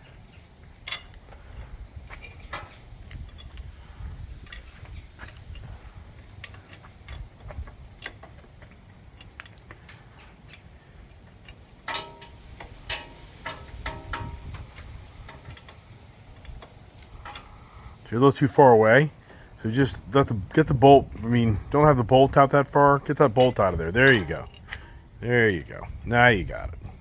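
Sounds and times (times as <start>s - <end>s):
ringing metal clinks: 11.9s - 14.8s.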